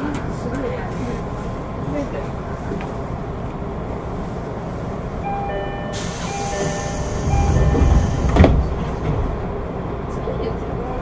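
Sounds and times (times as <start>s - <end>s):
train interior rumble: 0.0s - 11.0s
faint steady tones: 5.2s - 8.3s.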